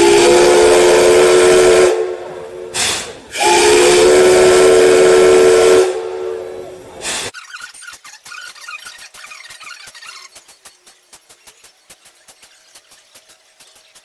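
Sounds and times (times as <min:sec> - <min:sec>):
steam hiss bursts: 0:00.0 - 0:06.3, 0:06.9 - 0:07.4
steam whistle blasts: 0:00.0 - 0:07.3.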